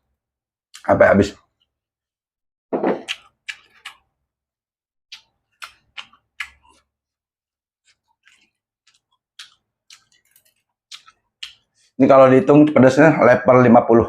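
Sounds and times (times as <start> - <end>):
chewing with lip smacks: 3.0 - 4.2, 5.1 - 6.9, 7.8 - 12.0.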